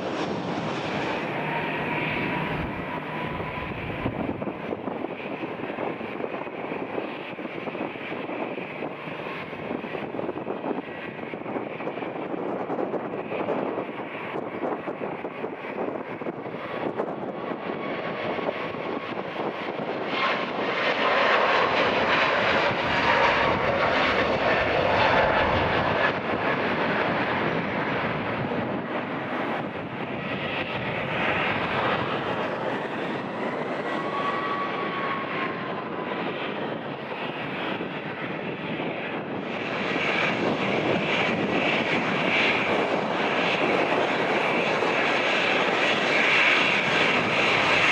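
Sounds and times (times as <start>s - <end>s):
faint engine whine: 0.0s - 47.9s
jet engines roaring: 0.0s - 47.9s.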